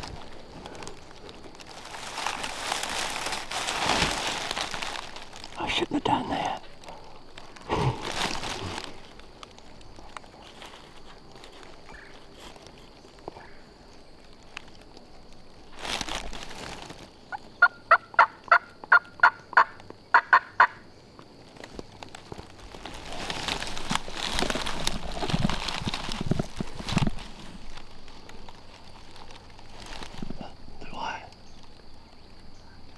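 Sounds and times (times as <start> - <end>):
rustling noise: 0.0 - 5.6, 7.3 - 13.3, 14.3 - 17.2, 21.2 - 31.0
turkey yelps: 17.3 - 20.8.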